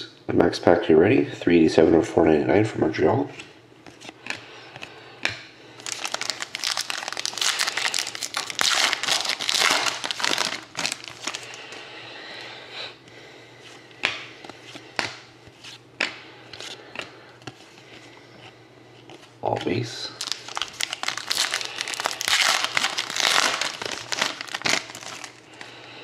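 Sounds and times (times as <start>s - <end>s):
wrapper tearing and crinkling: 5.8s - 11.6s, 20.2s - 25.5s.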